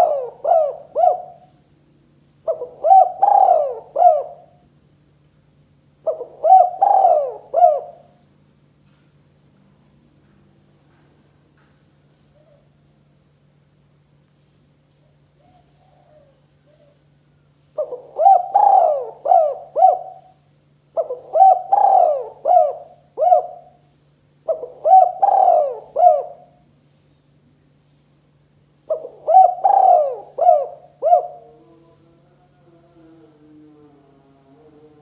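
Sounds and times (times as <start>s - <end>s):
dove cooing: 0.0s - 1.6s, 2.4s - 4.6s, 6.0s - 8.2s, 15.4s - 17.0s, 17.8s - 23.8s, 24.4s - 26.6s, 28.9s - 32.0s
faint low hum: 0.0s - 35.0s.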